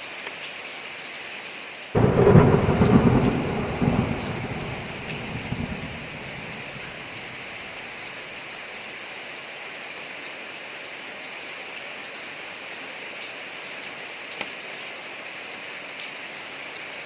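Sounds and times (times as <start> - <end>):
rain falling on a street: 0.0 - 17.0
thunder rumble: 2.0 - 8.1.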